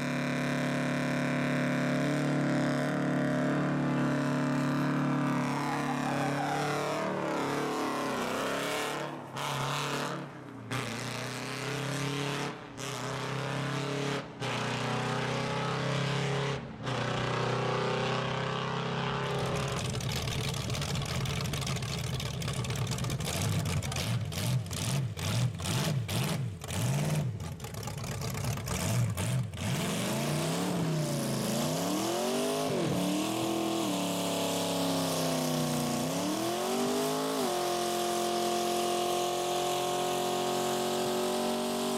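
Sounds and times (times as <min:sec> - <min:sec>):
car engines revving: 0:00.0 - 0:41.9.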